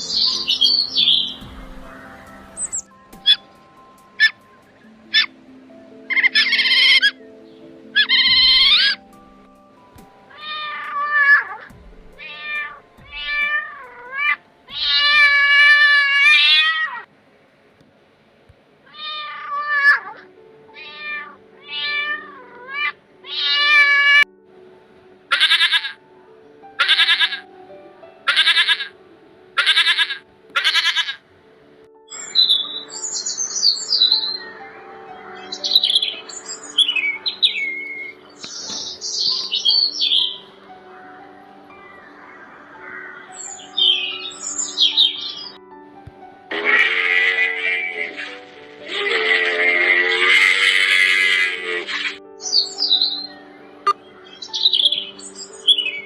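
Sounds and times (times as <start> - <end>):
background music sustained notes: 0.0 - 56.0
pitched animal calls: 25.3 - 26.0, 26.8 - 27.4, 28.3 - 29.0, 29.6 - 31.2, 46.5 - 52.2.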